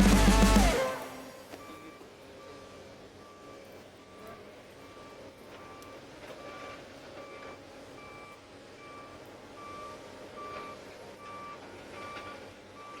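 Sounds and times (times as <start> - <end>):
machinery engine running: 0.0 - 1.5
back-up alarm beeping: 0.0 - 4.3, 4.9 - 13.0.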